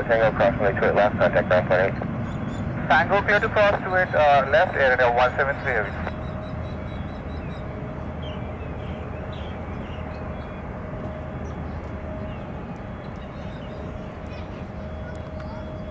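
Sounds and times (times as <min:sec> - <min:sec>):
faint steady whine: 0:00.0 - 0:02.2, 0:02.8 - 0:08.0
jet engines rumbling: 0:00.0 - 0:15.9.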